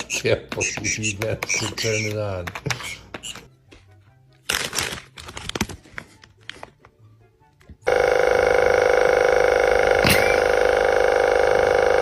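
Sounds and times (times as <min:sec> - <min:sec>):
electric bell ringing: 0:07.9 - 0:12.0.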